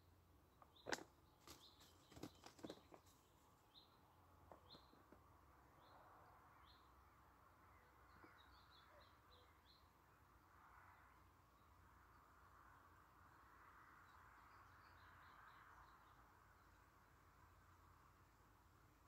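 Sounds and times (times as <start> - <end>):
small bird chirping: 0.5 - 7.0, 7.6 - 10.0.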